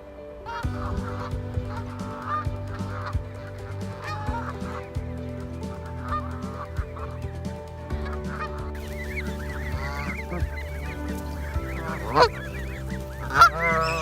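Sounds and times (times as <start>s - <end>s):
geese honking: 0.5s - 4.8s, 8.3s - 14.0s.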